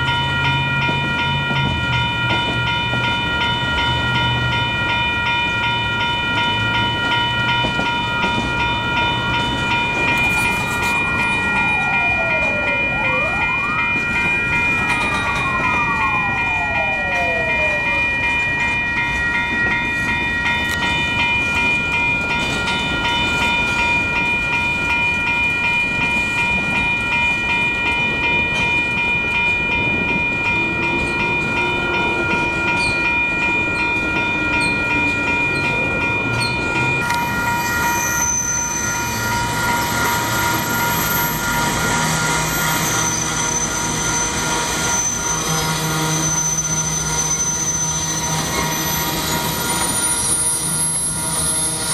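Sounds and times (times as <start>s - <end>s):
crossing warning bell ringing: 0.0s - 51.9s
slow train rumbling: 0.0s - 51.9s
high-pitched whine: 9.7s - 18.6s.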